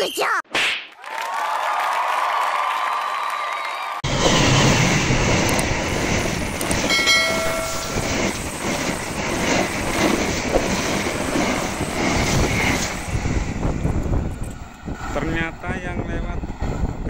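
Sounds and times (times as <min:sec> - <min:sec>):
train wheels rumbling and rattling: 0:04.1 - 0:17.0
brief steady tone: 0:06.9 - 0:08.4.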